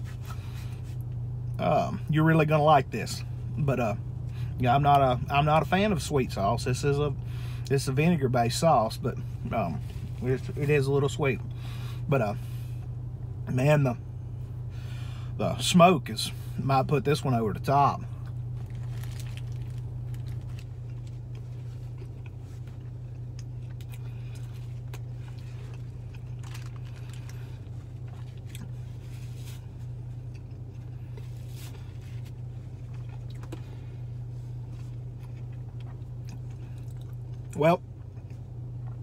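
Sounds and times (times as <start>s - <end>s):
low car interior hum: 0.0s - 39.0s
person chewing: 18.2s - 39.0s
paper wrapper crinkling: 18.5s - 21.9s, 24.6s - 27.4s.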